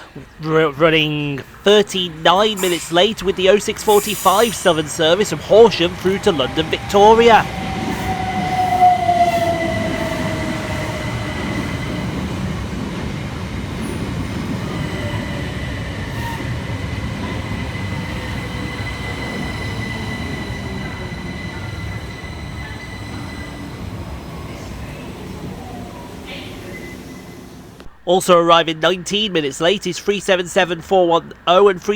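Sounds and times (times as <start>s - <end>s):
wheels rumbling on rail: 0.0s - 28.0s
high squeal: 2.4s - 12.6s, 14.6s - 25.0s
electric train motor whine: 2.7s - 27.9s.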